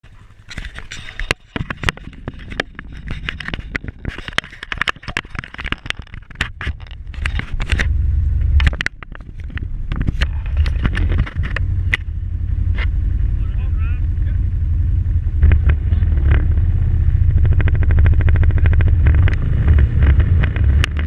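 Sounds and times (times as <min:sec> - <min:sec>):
sharp clicks and knocks: 0:00.0 - 0:12.1, 0:15.4 - 0:21.0
off-road vehicle rumble: 0:00.0 - 0:21.0.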